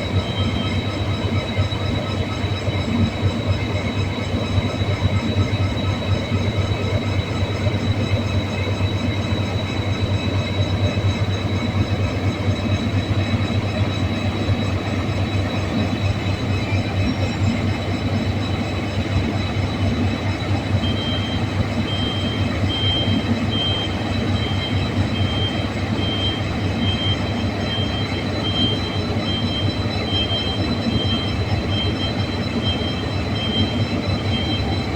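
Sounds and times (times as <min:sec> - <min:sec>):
diesel locomotives rumbling: 0:00.0 - 0:34.9
faint high-pitched beep: 0:20.1 - 0:34.9.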